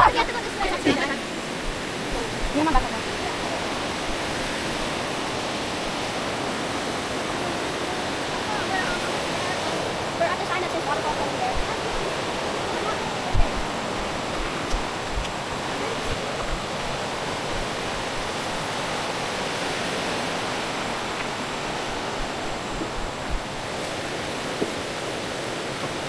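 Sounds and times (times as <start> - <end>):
flowing water rushing: 0.0 - 26.0
soft low thumps: 13.3 - 18.3, 20.8 - 23.8.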